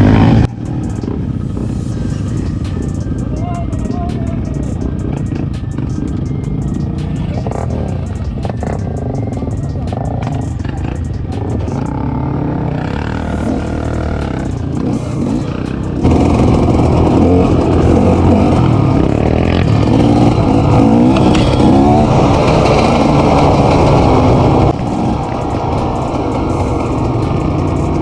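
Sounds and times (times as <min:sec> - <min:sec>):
off-road vehicle engine running: 0:00.0 - 0:28.0.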